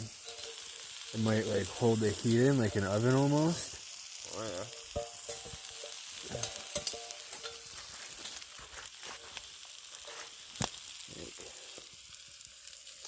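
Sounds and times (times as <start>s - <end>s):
chicken sizzling on hot rock: 0.0s - 13.0s
pops and crackles: 4.6s - 12.2s.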